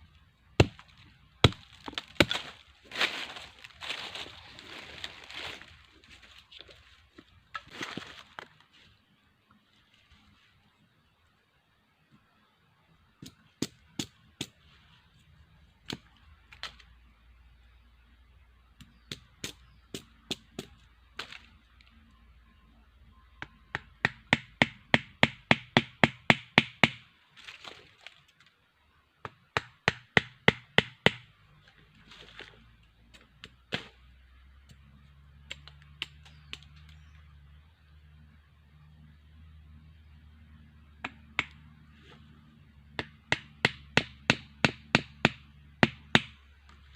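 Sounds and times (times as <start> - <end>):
blade chopping wood: 0.6 - 2.6, 33.4 - 34.0.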